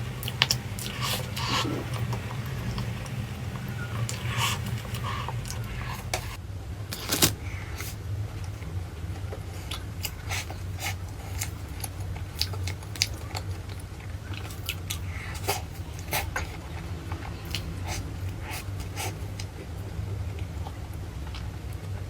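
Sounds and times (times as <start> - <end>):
crunchy chewing: 0.0 - 8.0, 9.5 - 21.9
steady low hum: 0.0 - 22.0.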